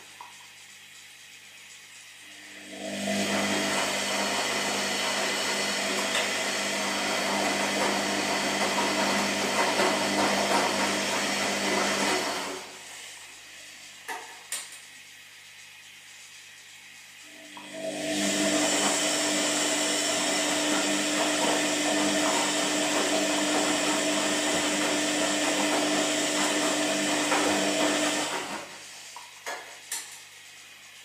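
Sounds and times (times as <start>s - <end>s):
washing machine drum turning: 2.9s - 12.3s, 17.5s - 28.7s.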